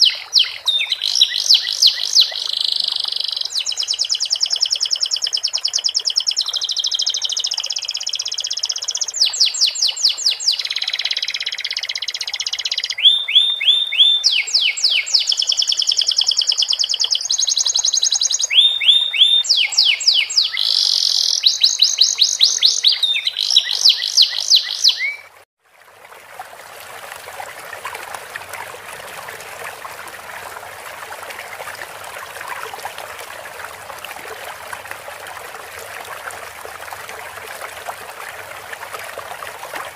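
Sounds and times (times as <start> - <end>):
canary singing trills: 0.0 - 25.3
trickling running water: 0.0 - 39.9.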